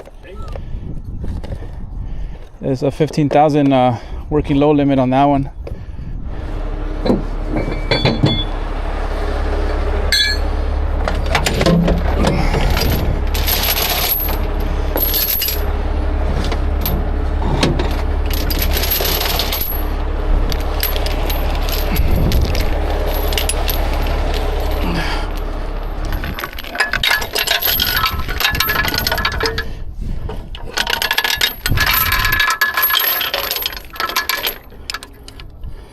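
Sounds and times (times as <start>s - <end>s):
steady low drone: 4.0s - 35.9s
heavy steel chain clinking: 7.0s - 8.6s, 10.1s - 29.8s, 30.5s - 35.5s.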